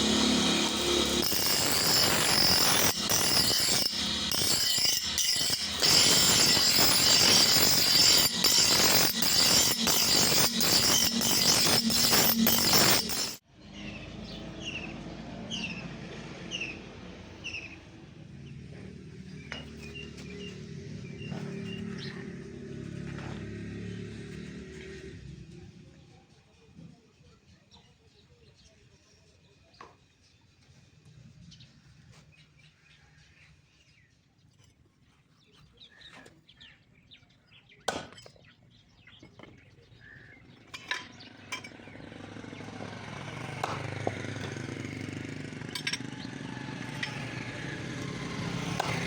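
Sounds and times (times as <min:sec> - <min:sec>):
power tool grinding steel: 0:00.0 - 0:13.5, 0:40.8 - 0:49.0
birds chirping: 0:19.2 - 0:22.9.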